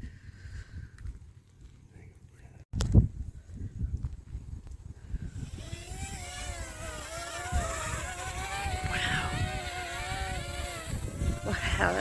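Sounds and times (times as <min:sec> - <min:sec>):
wind rumbling on microphone: 0:00.0 - 0:12.0
drone propellers whining: 0:05.2 - 0:12.0.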